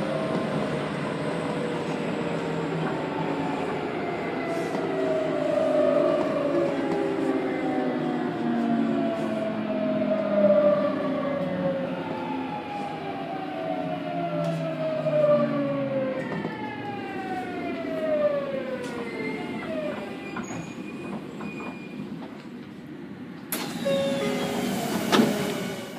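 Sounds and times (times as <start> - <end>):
train inverter and motors whining: 23.5 - 25.9
train bogie rumble: 23.6 - 25.9.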